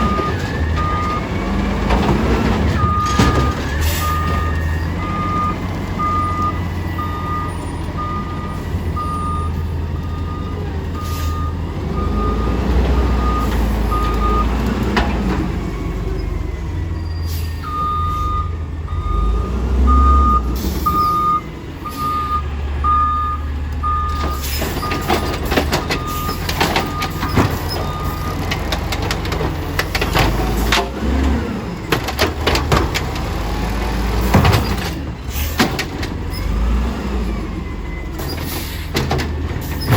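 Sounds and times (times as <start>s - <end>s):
garbage truck engine revving: 0.0s - 39.9s
reverse alarm beeping: 2.8s - 14.5s, 16.8s - 28.4s.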